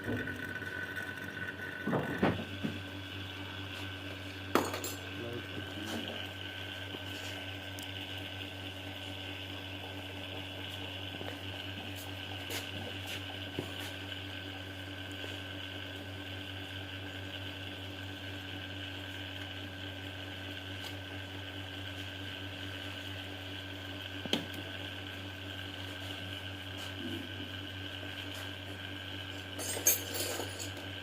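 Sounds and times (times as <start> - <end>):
steady machine hum: 0.0 - 31.0.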